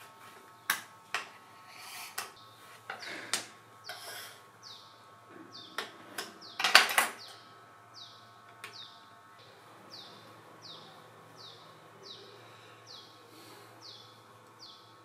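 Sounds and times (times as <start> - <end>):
small bird chirping: 4.6 - 5.8, 6.4 - 13.2, 13.8 - 14.9.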